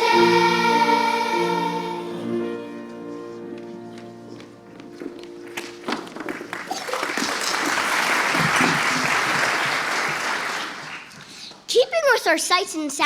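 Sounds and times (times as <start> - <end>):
held music chord: 0.0 - 6.6
audience applauding: 5.0 - 11.6.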